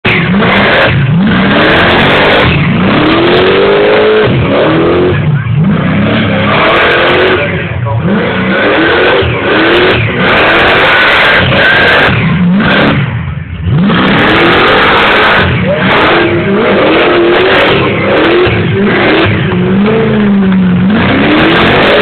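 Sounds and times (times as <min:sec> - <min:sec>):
car engine revving hard: 0:00.0 - 0:22.0
constant rush of noise: 0:04.4 - 0:22.0.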